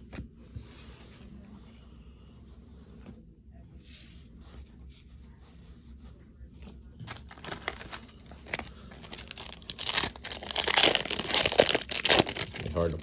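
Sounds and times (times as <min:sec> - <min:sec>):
card pack wrapper tearing: 0:07.1 - 0:13.0.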